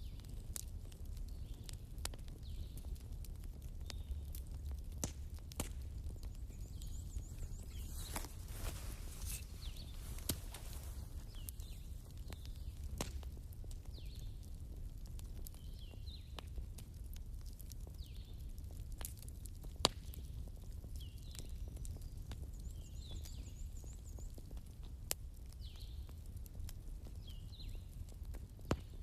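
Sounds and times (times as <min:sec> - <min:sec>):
fire crackling and popping: 0:00.0 - 0:29.0.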